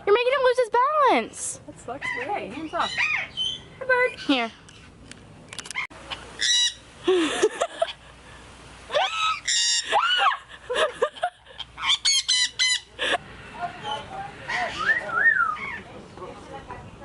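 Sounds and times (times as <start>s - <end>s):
parrot squawking: 2.0s - 4.6s, 6.1s - 6.9s, 9.0s - 10.3s, 11.6s - 12.9s, 13.8s - 15.9s.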